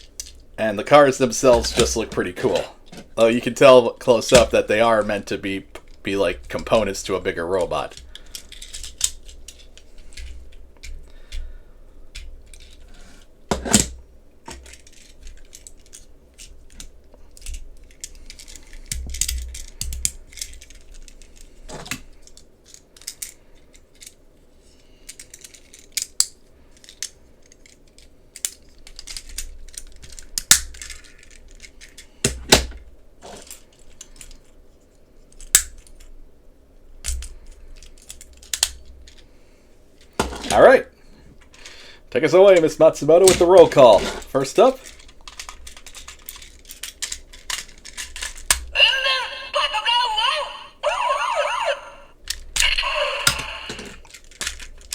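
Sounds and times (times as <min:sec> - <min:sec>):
plastic toy parts clicking: 0:07.6 - 0:11.5, 0:12.1 - 0:12.8, 0:14.5 - 0:21.5, 0:22.2 - 0:24.2, 0:25.1 - 0:32.0, 0:35.3 - 0:36.1, 0:37.0 - 0:39.2, 0:44.8 - 0:51.6, 0:52.3 - 0:54.9.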